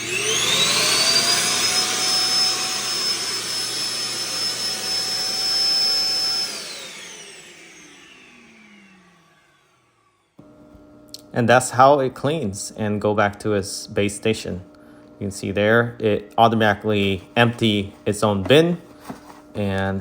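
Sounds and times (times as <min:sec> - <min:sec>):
suction motor whining: 0:00.0 - 0:10.4.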